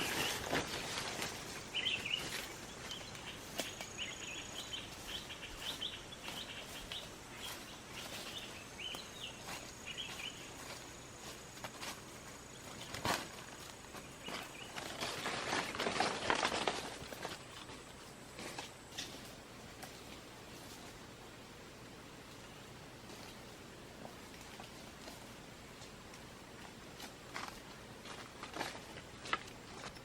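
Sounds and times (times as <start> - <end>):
birds chirping: 0.0 - 15.7
high insect drone: 0.0 - 20.4.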